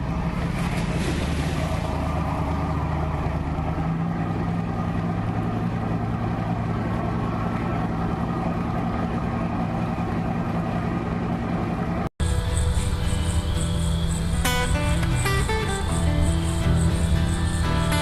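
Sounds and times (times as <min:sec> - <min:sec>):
low drone with held tones: 0:12.2 - 0:18.0.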